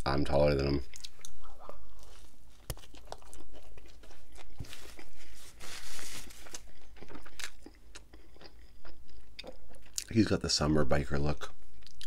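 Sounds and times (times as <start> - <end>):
crunchy sandwich chewing: 1.0 - 10.1.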